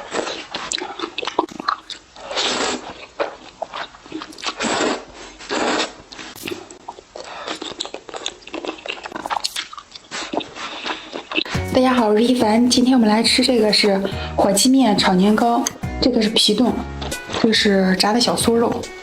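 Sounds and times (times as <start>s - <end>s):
crunching and chewing: 0.0s - 11.6s.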